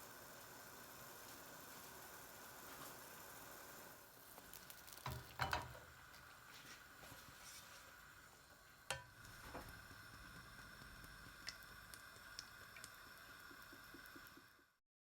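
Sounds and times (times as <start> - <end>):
faint steady hiss: 0.0 - 14.8
utensils clinking against cookware: 5.1 - 5.8.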